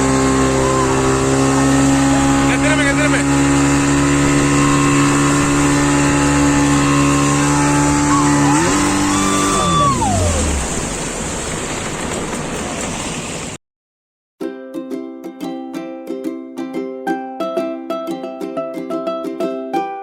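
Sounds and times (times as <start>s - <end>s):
speedboat engine running: 0.0s - 13.6s
water wash: 0.0s - 13.6s
wind noise: 3.3s - 12.9s.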